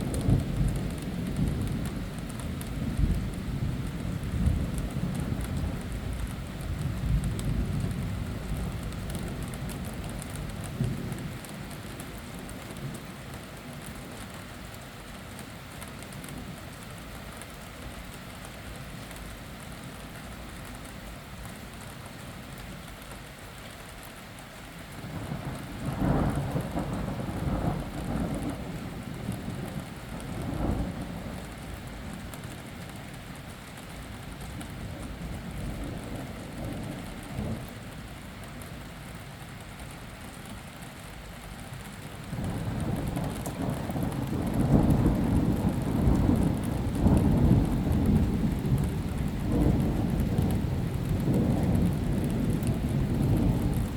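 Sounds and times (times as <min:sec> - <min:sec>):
rain falling: 0:00.0 - 0:53.9
thunder rumbling: 0:25.0 - 0:32.9, 0:42.2 - 0:53.9.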